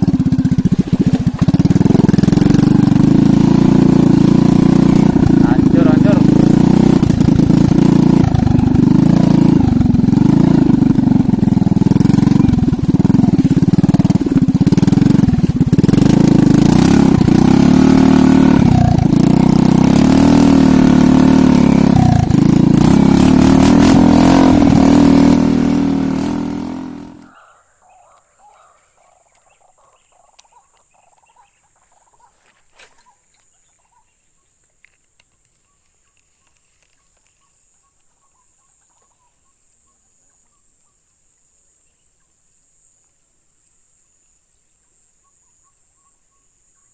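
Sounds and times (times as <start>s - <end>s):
motorcycle engine revving: 0.0s - 27.4s.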